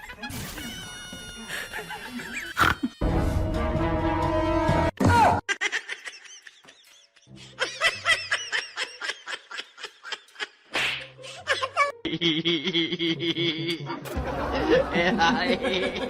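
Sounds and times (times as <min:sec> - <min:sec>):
person giggling: 0:01.5 - 0:03.0, 0:11.4 - 0:16.0.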